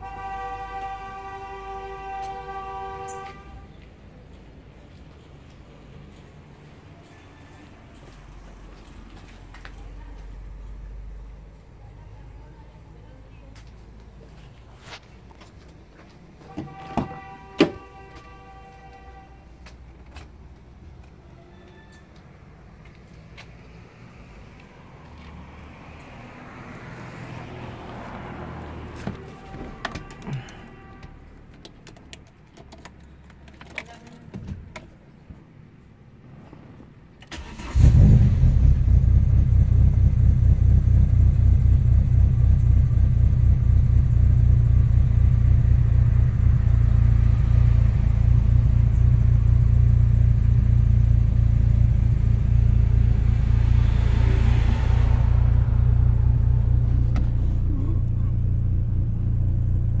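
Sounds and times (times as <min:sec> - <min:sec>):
car engine starting and running: 0:37.2 - 1:00.0.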